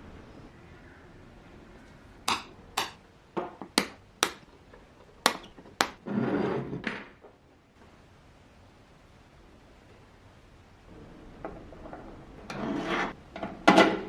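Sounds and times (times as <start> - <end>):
hammer tapping on metal: 2.3 - 3.0, 3.8 - 4.5, 5.3 - 6.0.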